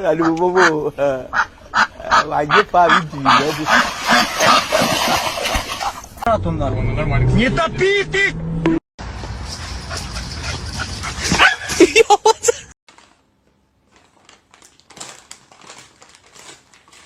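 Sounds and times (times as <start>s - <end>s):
rustling background noise: 12.9s - 17.0s.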